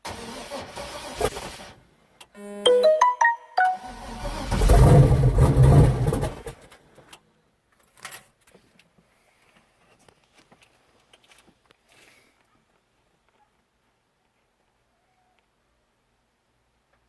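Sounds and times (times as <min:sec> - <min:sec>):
engine turning over rumbling: 0:03.9 - 0:06.7.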